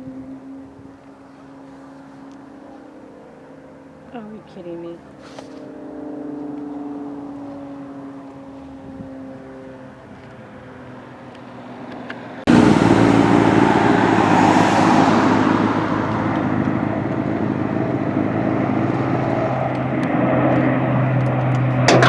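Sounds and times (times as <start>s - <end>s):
loud aircraft engine: 0.0s - 22.0s
low hum: 21.7s - 22.0s.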